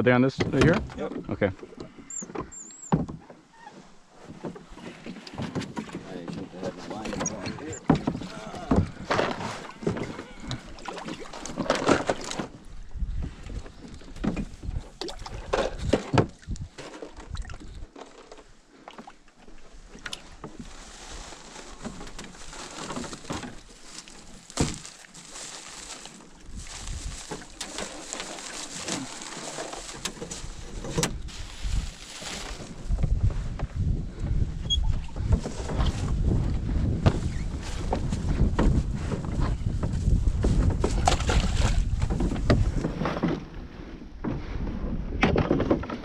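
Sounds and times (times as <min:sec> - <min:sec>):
knocks and clatter of handling: 0:00.4 - 0:12.6, 0:21.3 - 0:33.8
water sloshing against hull: 0:00.4 - 0:46.0.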